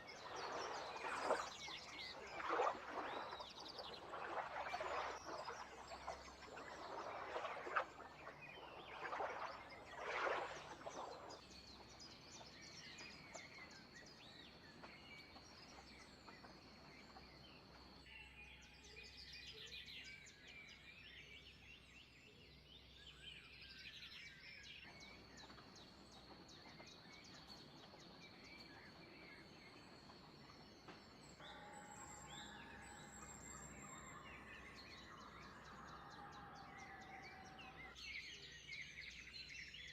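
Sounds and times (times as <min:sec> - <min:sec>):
thin steady high tone: 0:00.0 - 0:11.5
birds calling and chirping: 0:00.0 - 0:16.9.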